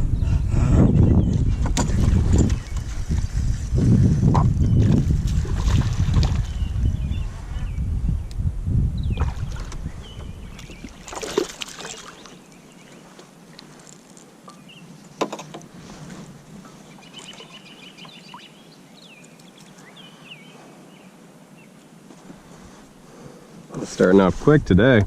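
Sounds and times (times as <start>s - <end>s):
small birds chirping: 9.0s - 15.2s, 16.6s - 21.9s.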